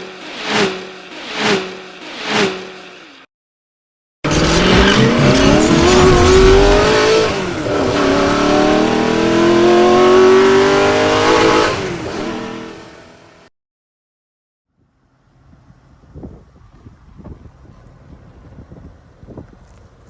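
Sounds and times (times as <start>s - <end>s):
car engine accelerating hard: 0.0s - 3.2s, 4.3s - 13.4s.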